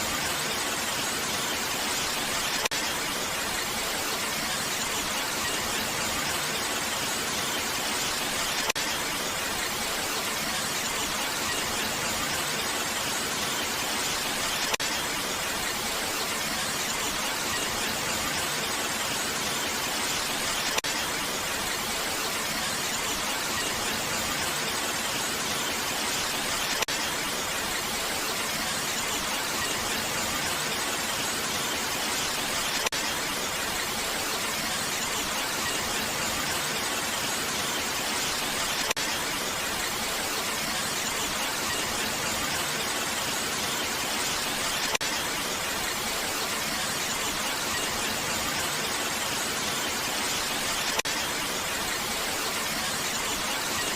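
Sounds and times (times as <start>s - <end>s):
steady hissy rain: 0.0s - 53.9s.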